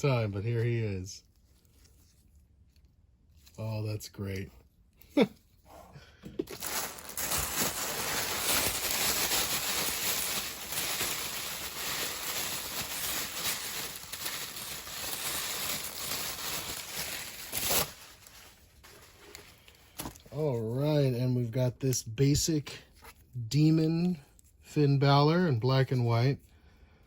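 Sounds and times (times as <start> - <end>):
packing paper crinkling: 6.5 - 20.4.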